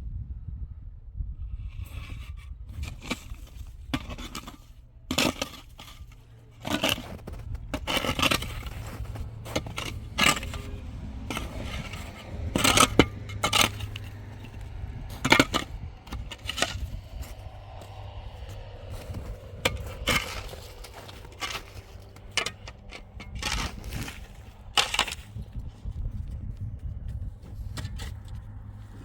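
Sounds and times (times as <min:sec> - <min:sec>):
hard material scraping: 0:01.7 - 0:25.7
clinks: 0:02.8 - 0:25.3.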